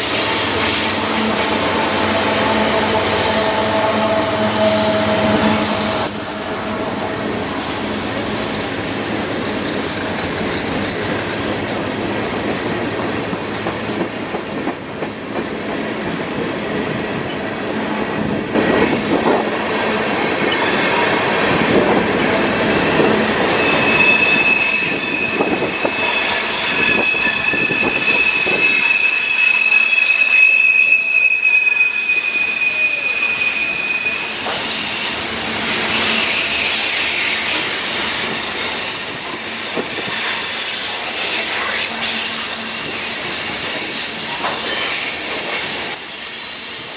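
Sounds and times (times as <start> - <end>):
high wheel squeal: 0.0 - 8.8, 20.4 - 46.9
freight cars rumbling on rails: 0.0 - 30.1.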